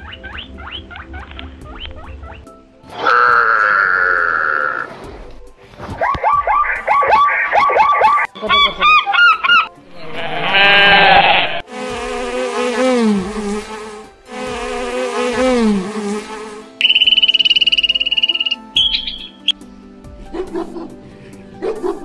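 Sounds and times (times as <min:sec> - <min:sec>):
honeybees buzzing: 0:10.0 - 0:19.6
fast high-pitched trill: 0:16.8 - 0:19.5
short repeated animal calls: 0:16.8 - 0:19.5.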